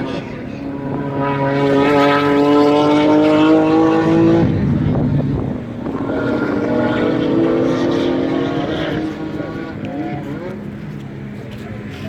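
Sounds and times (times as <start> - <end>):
race car engine accelerating: 0.0 - 12.0.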